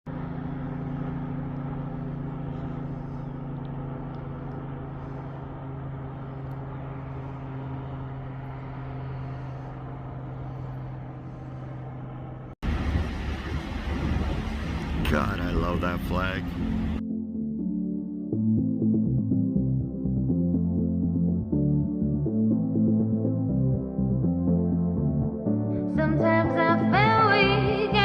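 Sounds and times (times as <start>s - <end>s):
vehicle engine humming: 0.1s - 17.0s
loud rushing noise: 12.6s - 17.0s.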